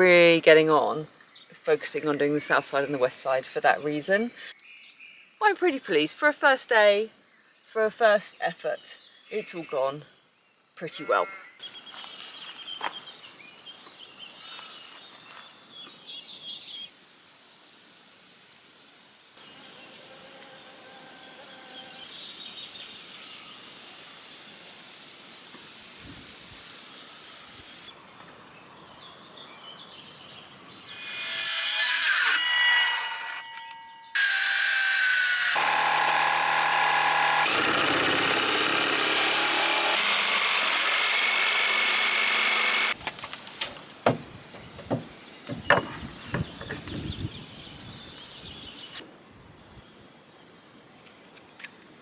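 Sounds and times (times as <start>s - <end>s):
insect trill: 16.5s - 28.5s, 39.5s - 52.0s
power tool running: 34.2s - 43.0s.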